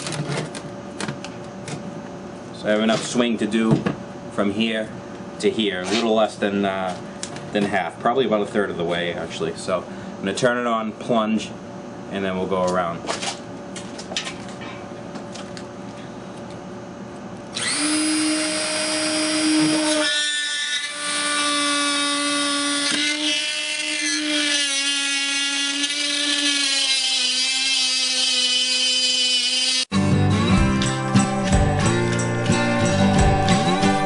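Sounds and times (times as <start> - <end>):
rotary tool whining: 17.5 - 29.9
router bit cutting acrylic: 17.6 - 29.9.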